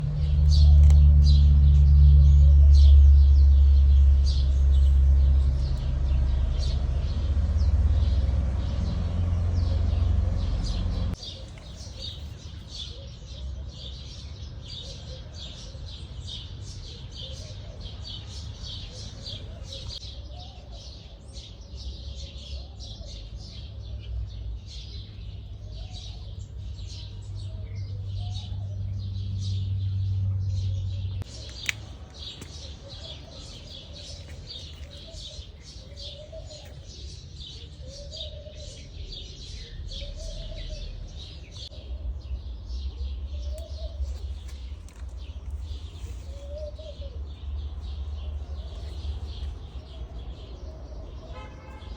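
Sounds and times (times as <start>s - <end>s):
low rumble: 0.0s - 11.2s
small birds chirping: 0.0s - 51.9s.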